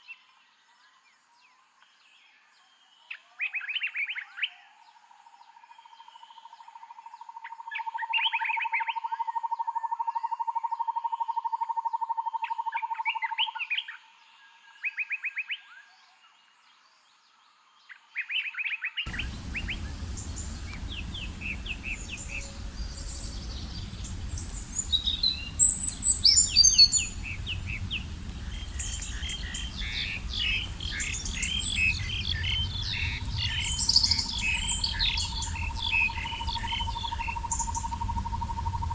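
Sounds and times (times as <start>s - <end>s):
chorus of bird calls: 19.1s - 38.9s
long even bird trill: 19.1s - 38.9s
songbirds chirping: 19.1s - 38.9s
steady background rush: 19.1s - 38.9s.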